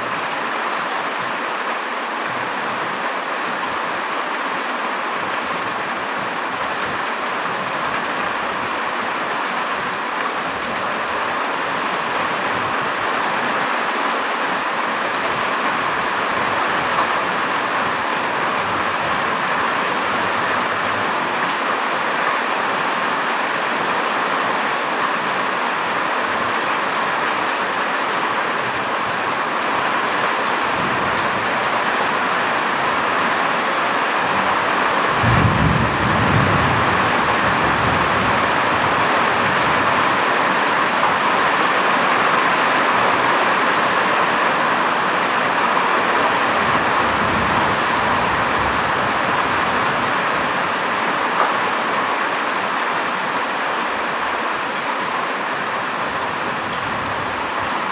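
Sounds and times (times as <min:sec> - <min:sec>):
heavy rain: 0:00.0 - 0:57.9
thunder rumbling: 0:35.1 - 0:39.0.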